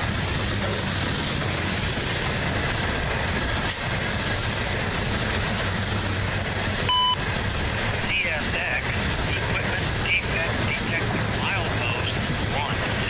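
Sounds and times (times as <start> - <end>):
freight train cars rumbling past: 0.0 - 13.0
short electronic beep: 6.9 - 7.2.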